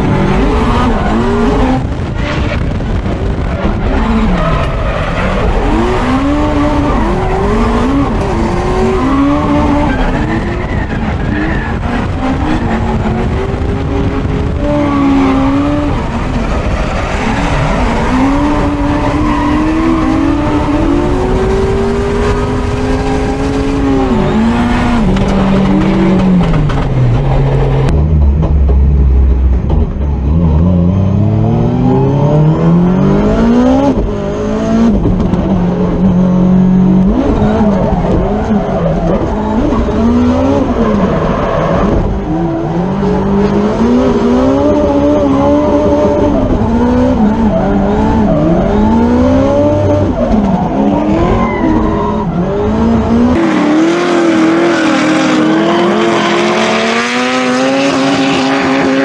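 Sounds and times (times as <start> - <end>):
car engine revving hard: 39.1 - 59.0.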